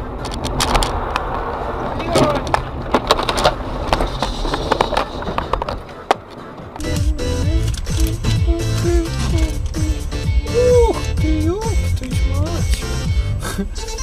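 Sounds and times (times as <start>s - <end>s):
car road and engine noise: 0.0s - 14.0s
sharp knocks and clatters: 1.9s - 6.5s.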